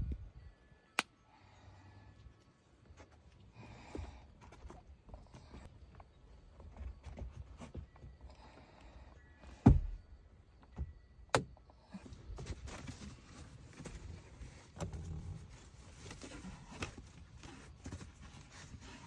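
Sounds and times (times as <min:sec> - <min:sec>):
object thudding down: 0:09.6 - 0:10.0.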